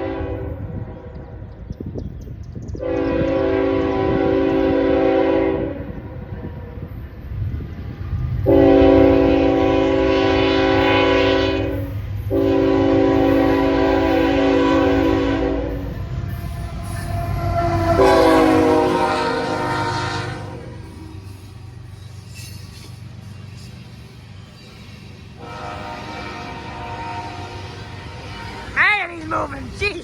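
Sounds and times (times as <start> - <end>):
locomotive air horn blasts: 0.0 - 1.2, 2.8 - 6.7, 8.4 - 21.0, 25.4 - 28.8
low rumble of passing train: 0.0 - 30.0.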